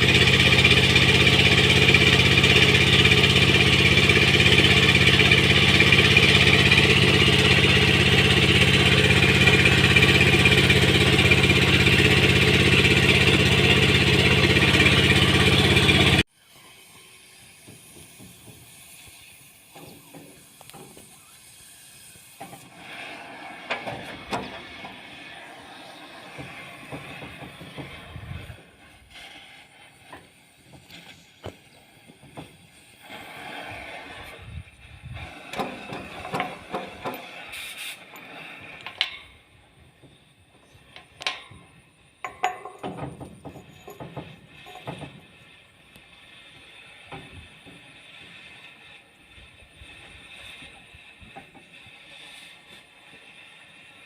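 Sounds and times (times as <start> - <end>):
engine running: 0.0 - 54.0
strong hiss: 16.3 - 54.0.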